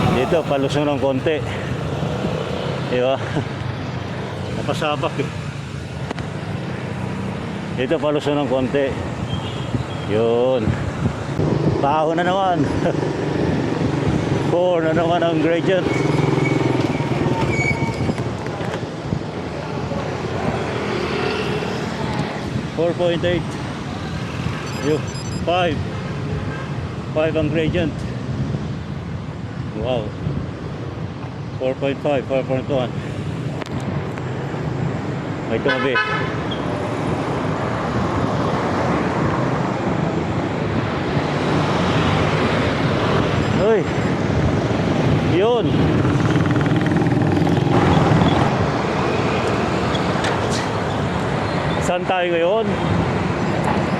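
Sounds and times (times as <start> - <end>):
hum of passing traffic: 0.0 - 53.9
wind over microphone: 9.0 - 15.1, 16.8 - 20.8.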